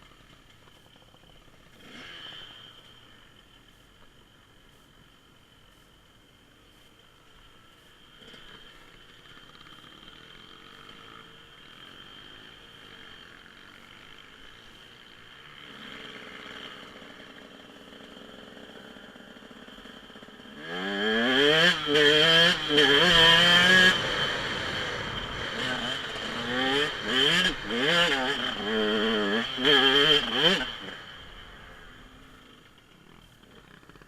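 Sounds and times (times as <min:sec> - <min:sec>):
dirt bike engine revving: 0:00.8 - 0:03.4, 0:08.1 - 0:34.0.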